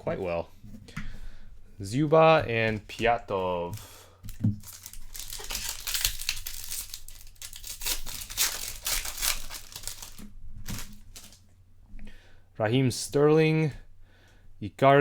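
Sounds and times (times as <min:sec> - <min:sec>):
foil wrapper crinkling and tearing: 0:02.8 - 0:11.4.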